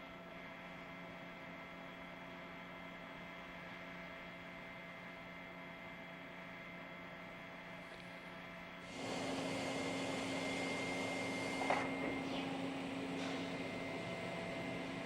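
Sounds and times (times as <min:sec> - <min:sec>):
steady held tones: 0:08.9 - 0:15.0.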